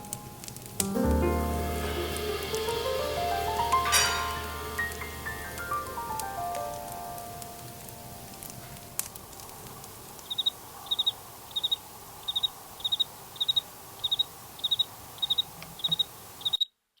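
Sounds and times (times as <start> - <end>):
faint steady hiss: 0.0 - 17.0
cricket chirping: 10.2 - 16.7.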